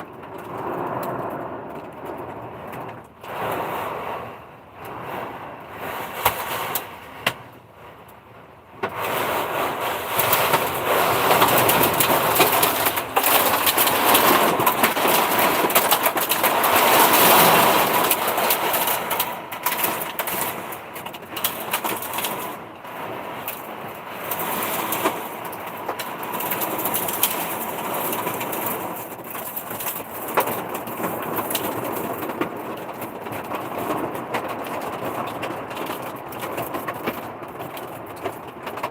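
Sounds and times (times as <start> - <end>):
heavy rain pouring: 0.0 - 38.9
drops or hail striking: 5.9 - 7.5, 8.8 - 38.9.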